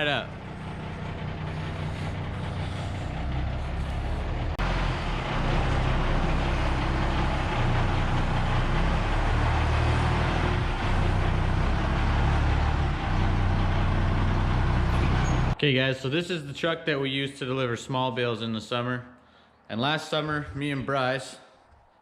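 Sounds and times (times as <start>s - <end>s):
truck engine running: 0.0s - 15.6s.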